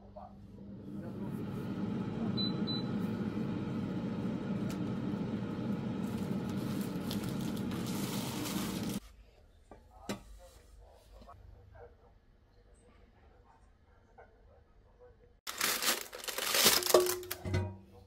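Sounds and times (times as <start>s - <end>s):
machine hum with hiss: 0.7s - 9.0s.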